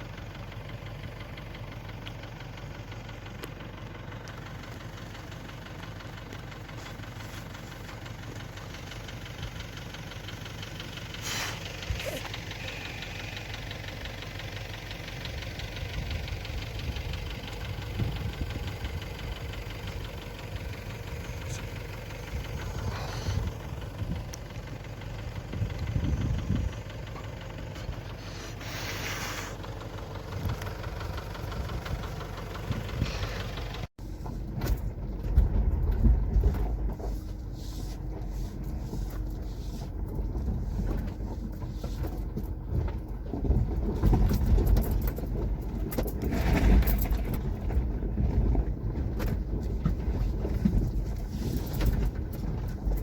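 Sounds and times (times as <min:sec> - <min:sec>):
vehicle engine running: 0:00.0 - 0:53.0
road noise: 0:10.1 - 0:14.4, 0:16.0 - 0:53.0
wind buffeting microphone: 0:25.5 - 0:26.8.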